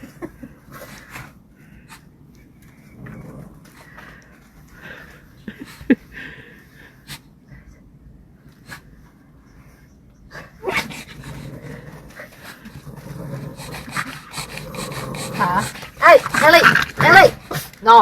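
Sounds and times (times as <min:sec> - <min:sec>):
dog huffing: 0:10.3 - 0:17.8
dog snuffling: 0:10.7 - 0:17.8.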